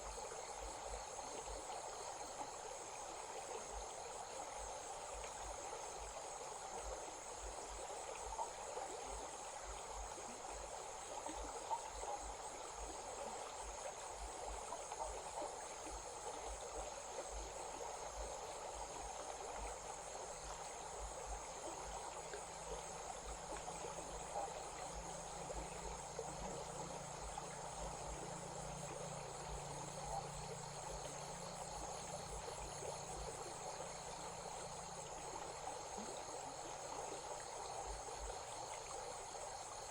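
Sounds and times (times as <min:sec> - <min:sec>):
crickets chirring: 0:00.0 - 0:39.9
stream running: 0:00.0 - 0:39.9.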